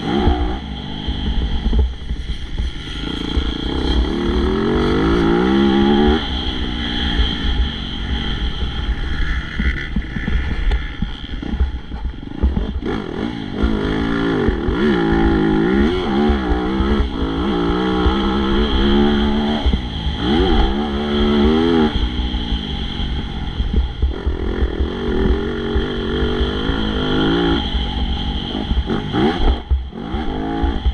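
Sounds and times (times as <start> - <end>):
motocross bike engines revving: 0.0 - 30.9.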